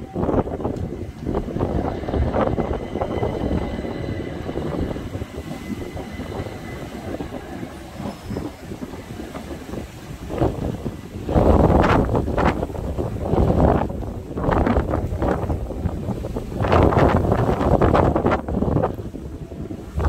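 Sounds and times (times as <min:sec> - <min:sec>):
faint thin whine: 0:00.0 - 0:11.6
train rumbling over rails: 0:00.0 - 0:20.0
wind buffeting microphone: 0:00.0 - 0:20.0.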